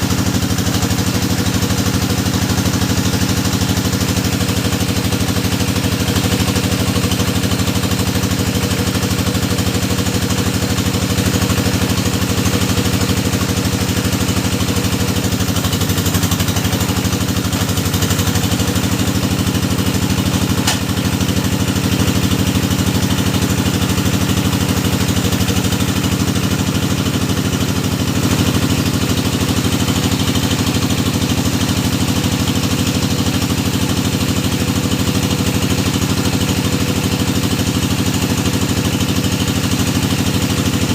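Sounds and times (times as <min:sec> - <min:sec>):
drilling machine engine running: 0:00.0 - 0:40.9
sharp click: 0:20.6 - 0:20.9.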